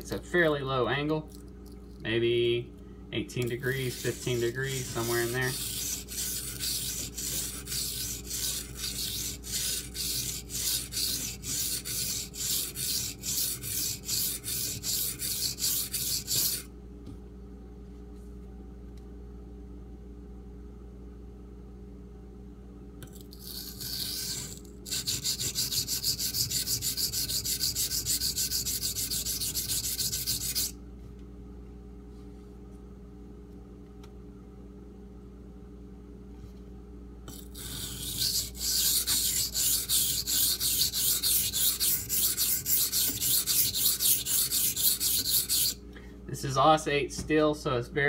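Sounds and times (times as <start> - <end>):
knife blade scraping on whetstone: 3.5 - 16.7, 23.4 - 30.7, 37.3 - 45.8.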